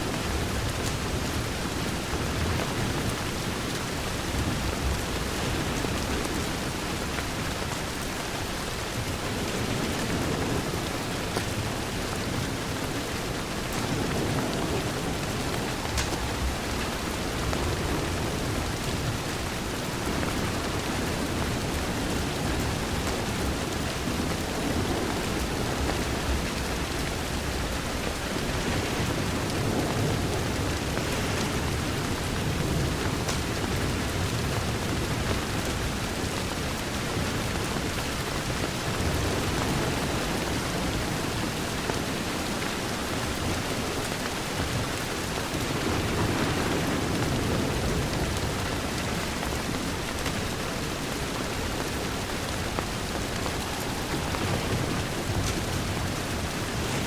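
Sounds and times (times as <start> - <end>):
rain pattering on a window: 0.0 - 57.0
low rolling rumble: 45.7 - 57.0.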